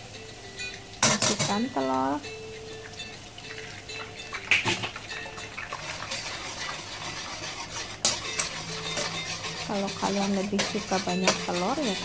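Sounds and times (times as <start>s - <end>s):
egg sizzling in oil: 0.0s - 12.0s
ladle clinking and scraping: 0.7s - 1.8s, 3.1s - 12.0s.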